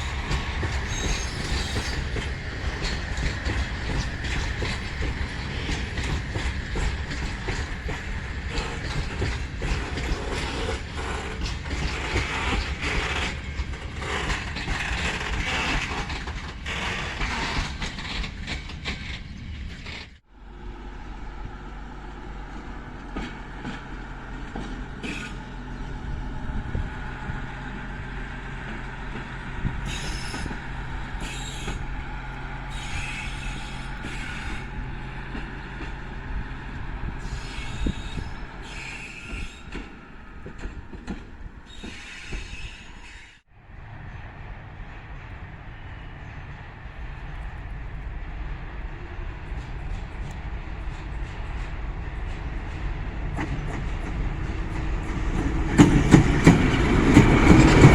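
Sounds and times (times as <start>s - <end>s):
train wheels squealing: 0.0s - 20.2s, 24.6s - 26.1s, 29.1s - 47.6s
locomotive engine running: 0.0s - 43.1s, 43.7s - 57.9s
train rolling: 0.0s - 57.9s.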